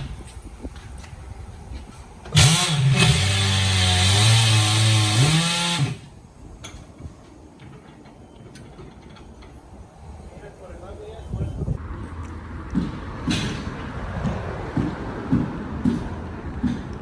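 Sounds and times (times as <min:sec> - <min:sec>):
pneumatic impact wrench whining: 0:02.3 - 0:06.2.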